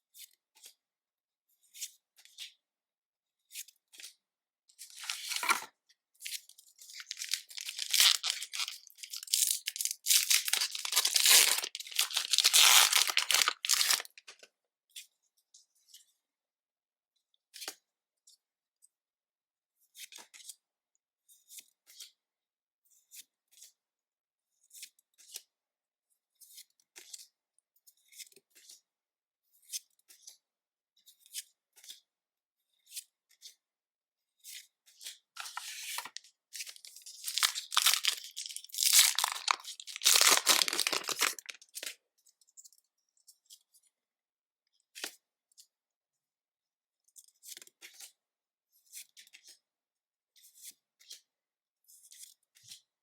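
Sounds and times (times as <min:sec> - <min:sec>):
wrapping tearing: 0:05.0 - 0:05.6, 0:07.0 - 0:14.2, 0:35.4 - 0:41.9
packaging crinkling: 0:05.0 - 0:05.7, 0:07.0 - 0:14.2, 0:35.4 - 0:41.9.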